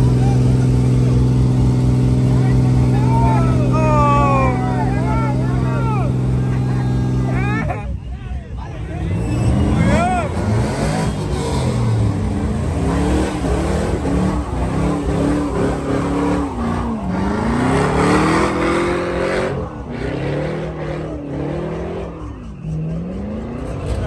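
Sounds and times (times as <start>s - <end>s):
car engine revving: 0.0s - 7.7s, 9.0s - 24.0s
tyre squeal: 9.0s - 11.6s.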